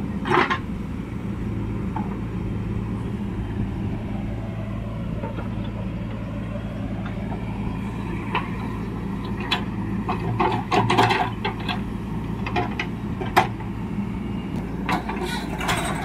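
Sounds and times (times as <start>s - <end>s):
diesel engine of heavy machinery: 0.0s - 16.0s
metal clanks and knocks: 0.2s - 0.7s, 8.3s - 13.7s, 14.8s - 16.0s.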